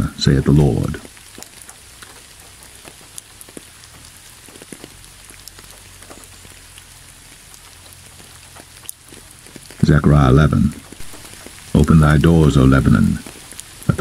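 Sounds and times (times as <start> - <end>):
faint low rumble: 0.0 - 1.2
raindrop ticks: 0.0 - 14.0
steady rain falling: 0.0 - 14.0.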